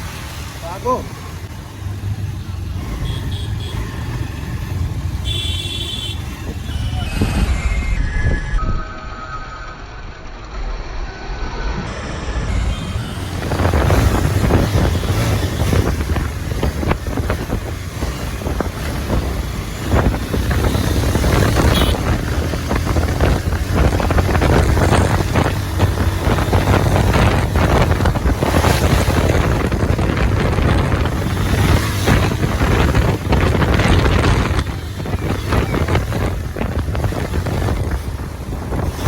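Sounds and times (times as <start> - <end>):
motorcycle engine drone: 0.0 - 39.0
wind buffeting microphone: 12.5 - 39.0.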